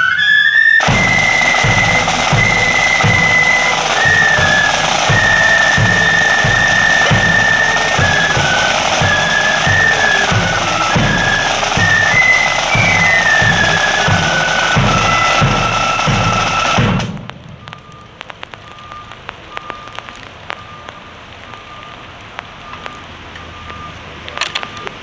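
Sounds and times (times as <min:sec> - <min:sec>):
marching flute band: 0:00.0 - 0:20.9
bass drum beats: 0:00.8 - 0:18.6
faint clicks: 0:15.7 - 0:25.0.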